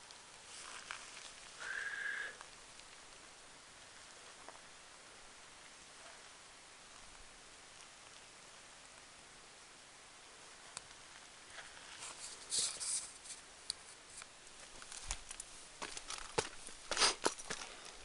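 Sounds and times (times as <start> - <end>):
footsteps on rock: 14.6 - 18.0.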